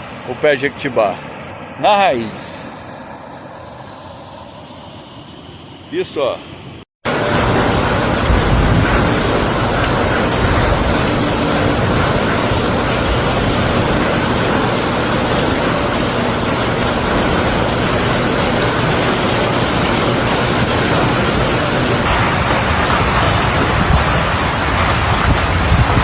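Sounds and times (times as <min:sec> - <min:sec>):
wind: 0:00.0 - 0:26.0
heavy rain: 0:07.0 - 0:26.0.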